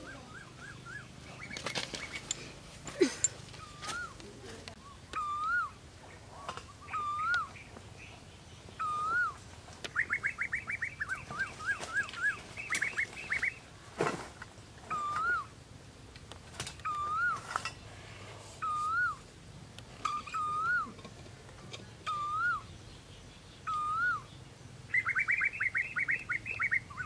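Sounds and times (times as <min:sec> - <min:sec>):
fast bird chirps: 0:00.0 - 0:02.3, 0:08.8 - 0:13.6, 0:23.5 - 0:27.0
bird whistling: 0:00.0 - 0:02.4, 0:03.5 - 0:04.2, 0:04.8 - 0:05.8, 0:06.4 - 0:07.7, 0:08.8 - 0:13.6, 0:14.9 - 0:15.5, 0:16.8 - 0:17.6, 0:18.6 - 0:19.2, 0:20.0 - 0:21.0, 0:22.0 - 0:22.7, 0:23.6 - 0:27.0.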